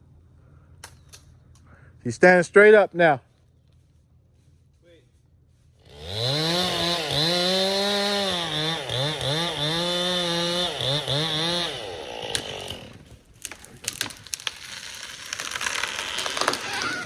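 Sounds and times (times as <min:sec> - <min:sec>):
chainsaw cutting wood: 0:05.8 - 0:17.0
wood cracking and snapping: 0:10.8 - 0:17.0.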